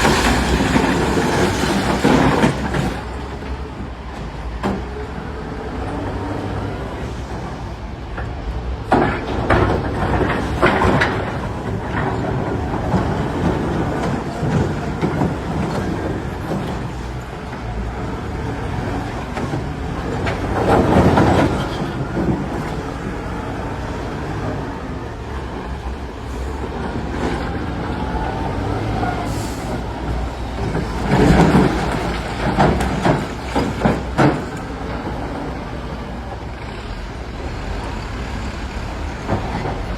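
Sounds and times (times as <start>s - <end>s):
machinery clattering: 0.0s - 3.6s, 25.5s - 36.5s
diesel machinery rumbling: 0.0s - 39.9s.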